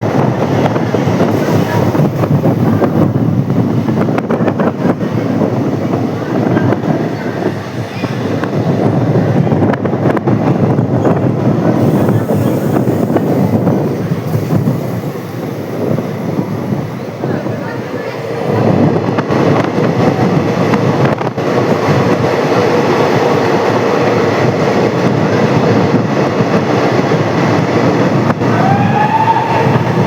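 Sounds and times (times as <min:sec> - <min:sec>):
train rumbling on rails: 0:00.0 - 0:30.0
rattling clicks of wheels: 0:09.6 - 0:28.9.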